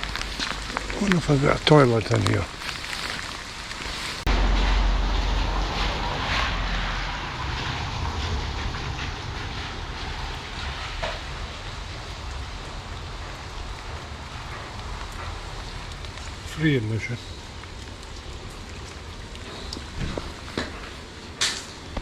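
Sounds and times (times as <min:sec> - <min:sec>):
rain hiss: 0:00.0 - 0:22.0
wind rumbling on microphone: 0:00.0 - 0:22.0.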